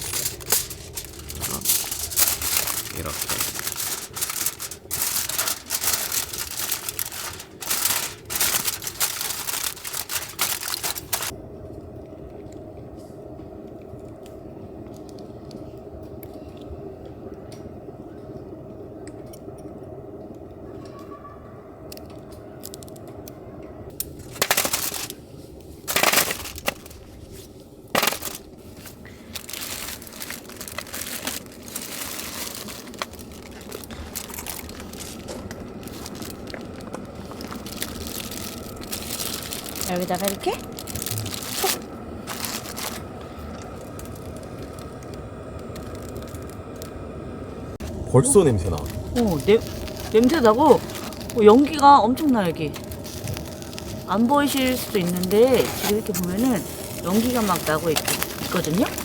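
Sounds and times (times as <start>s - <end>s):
aluminium foil crinkling: 0.0s - 11.4s, 23.9s - 47.0s, 48.4s - 59.0s
steady low hum: 0.0s - 59.0s.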